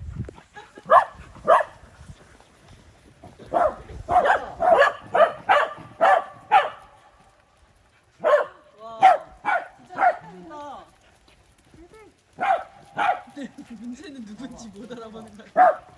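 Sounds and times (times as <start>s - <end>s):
dog barking: 0.9s - 1.8s, 3.5s - 7.0s, 8.2s - 10.3s, 12.4s - 13.4s, 15.5s - 15.9s.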